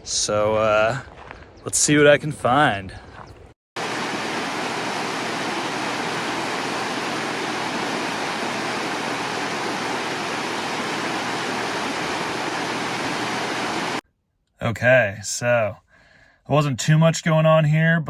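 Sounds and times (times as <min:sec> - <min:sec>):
river water rushing: 0:03.8 - 0:14.0.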